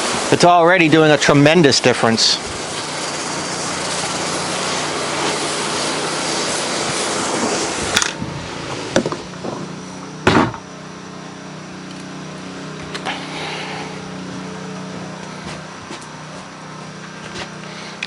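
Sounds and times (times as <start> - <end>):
pressure washer spray hissing: 0.0 - 10.1
pressure washer engine running: 0.0 - 18.0.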